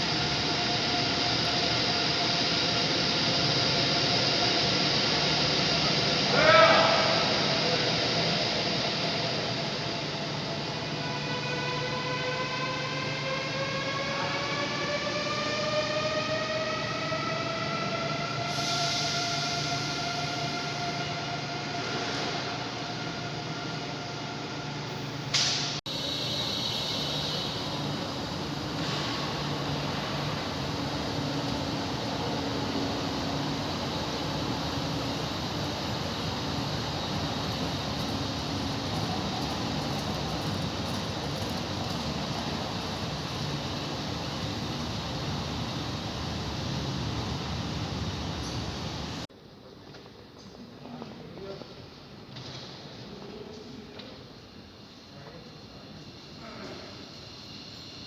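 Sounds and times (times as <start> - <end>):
train motors whining: 0.0 - 49.2
hiss: 18.5 - 20.8, 25.3 - 46.1, 54.1 - 58.0.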